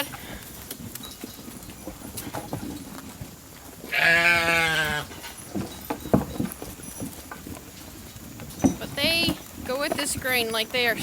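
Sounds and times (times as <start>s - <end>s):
sheep bleating: 3.9s - 5.1s.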